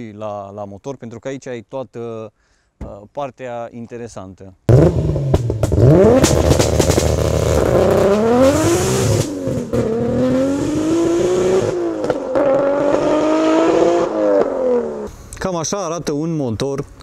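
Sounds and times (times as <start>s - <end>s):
car engine accelerating hard: 4.7s - 15.1s.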